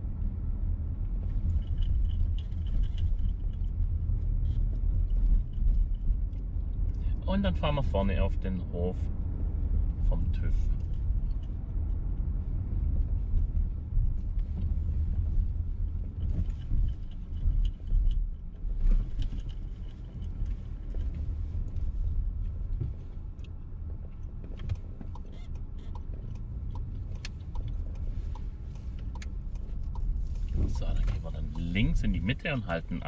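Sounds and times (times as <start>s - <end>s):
car engine and tyres rumbling: 0.0s - 33.0s
soft ticks: 16.0s - 21.9s, 22.7s - 31.8s.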